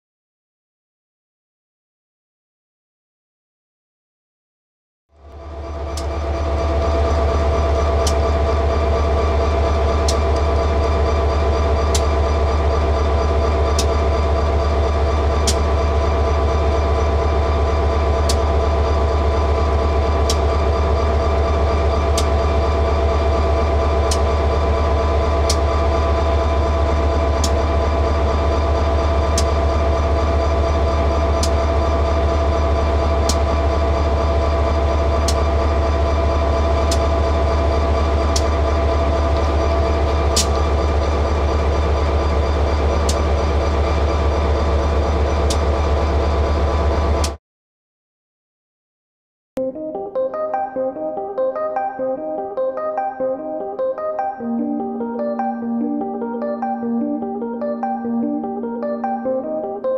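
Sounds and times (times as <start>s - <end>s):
freight train heavy rumble: 5.2s - 47.4s.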